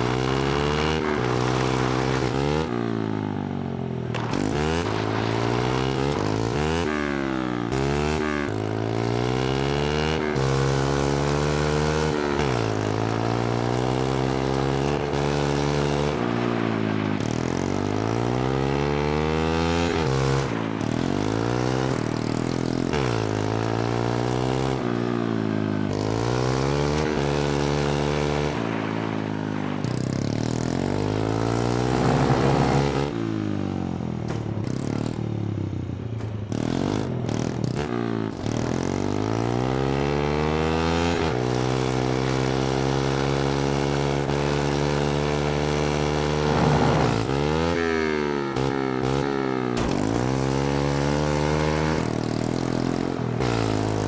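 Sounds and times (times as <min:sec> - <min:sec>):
small engine revving: 0:00.0 - 0:03.4, 0:04.1 - 0:35.3, 0:36.5 - 0:54.0.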